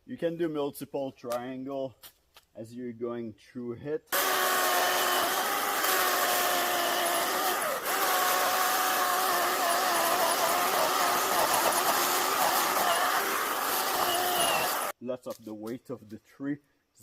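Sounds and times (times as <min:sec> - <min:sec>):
electric chainsaw cutting wood: 0:04.1 - 0:15.0.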